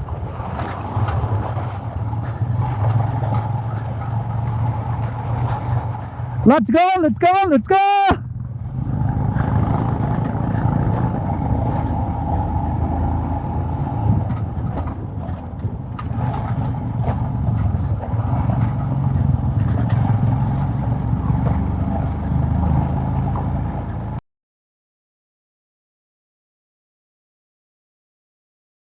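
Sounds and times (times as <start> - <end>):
motorcycle engine running: 0.5 - 6.4, 8.2 - 24.2.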